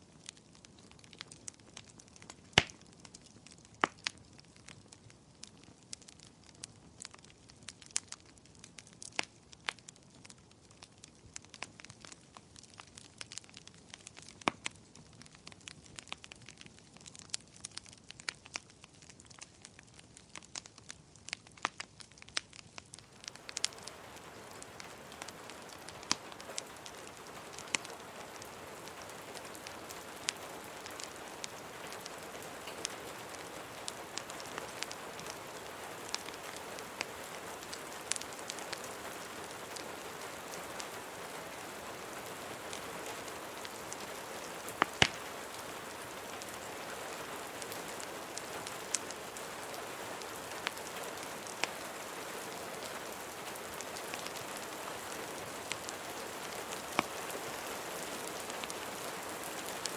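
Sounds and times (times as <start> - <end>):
wood fire crackling and popping: 0.0 - 59.9
rain hiss: 23.0 - 59.9.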